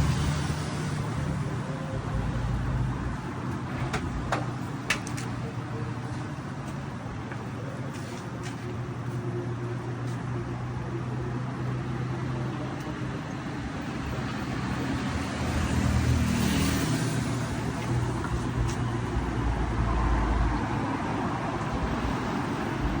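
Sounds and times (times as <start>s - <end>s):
deep vehicle rumble: 0.0s - 14.8s
traffic engines humming: 0.0s - 23.0s
vehicle passing by: 14.4s - 23.0s.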